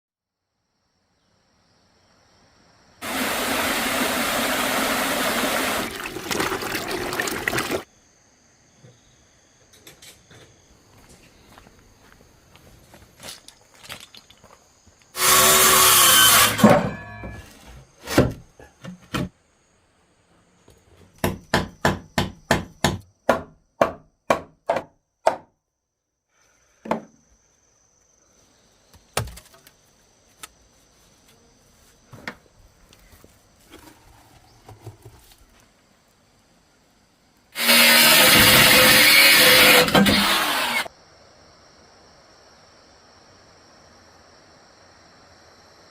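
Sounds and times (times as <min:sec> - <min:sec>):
chopping strikes on wood: 0:21.2 - 0:25.5
knocks on wood: 0:21.2 - 0:25.5
hand saw rasping: 0:37.6 - 0:40.9.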